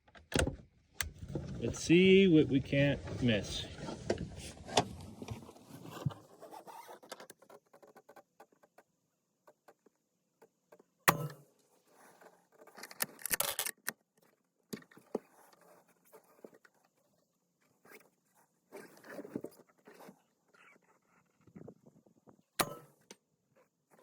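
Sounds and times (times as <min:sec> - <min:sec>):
rifle handling clicks and rattles: 0:12.7 - 0:14.0.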